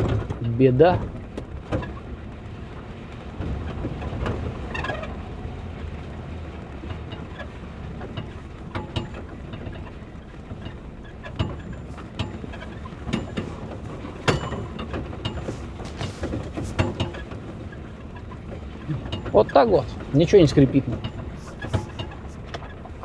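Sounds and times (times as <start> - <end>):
car engine and tyres rumbling: 0.0 - 23.0
interior knocks and rattles: 6.8 - 23.0.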